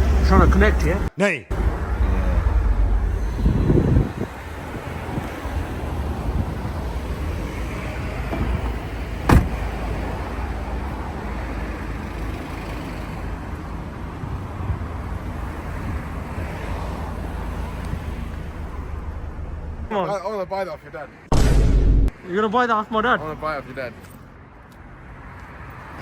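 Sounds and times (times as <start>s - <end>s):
car engine and road rumble: 0.0s - 22.2s
sharp knock: 21.3s - 22.2s.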